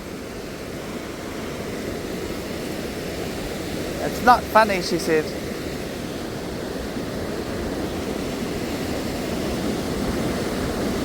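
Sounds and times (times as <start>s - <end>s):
waterfall rushing: 3.8s - 5.6s.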